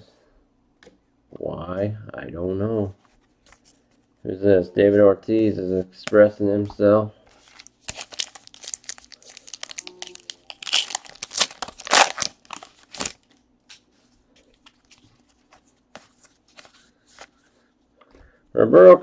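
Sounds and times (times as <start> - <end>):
foil wrapper crinkling and tearing: 7.4 - 13.4.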